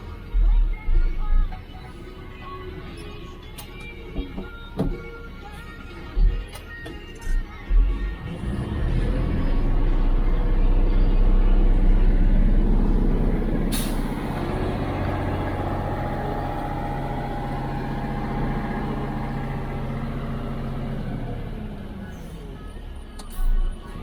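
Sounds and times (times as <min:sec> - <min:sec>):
diesel engine running: 0:07.5 - 0:24.0.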